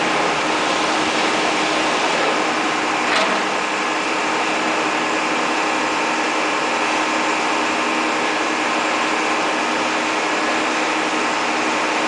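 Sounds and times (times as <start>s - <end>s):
excavator diesel engine droning: 0.0s - 12.0s.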